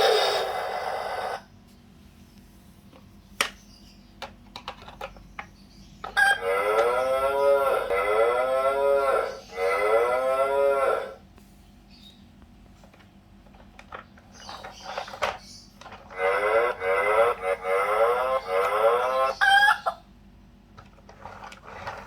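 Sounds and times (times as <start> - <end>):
toy playing cow mooing: 0.0 - 1.4, 6.2 - 11.2, 16.1 - 19.9.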